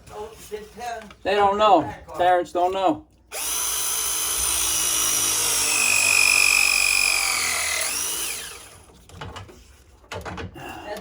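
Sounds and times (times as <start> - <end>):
cordless power tool whine: 3.3 - 8.9.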